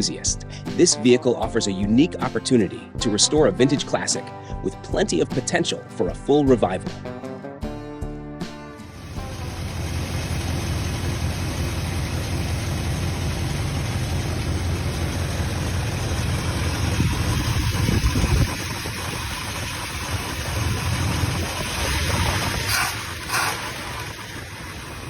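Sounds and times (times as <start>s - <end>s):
car engine idling: 8.8s - 25.0s.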